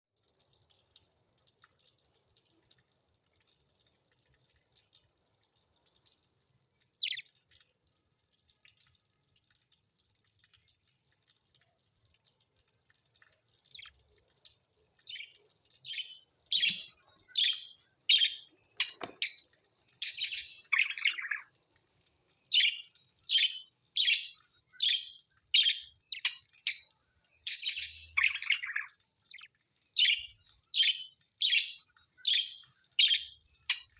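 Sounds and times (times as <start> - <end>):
faint high bird chattering: 15.1 - 19.4, 20.0 - 21.4, 22.5 - 26.9, 27.5 - 33.9.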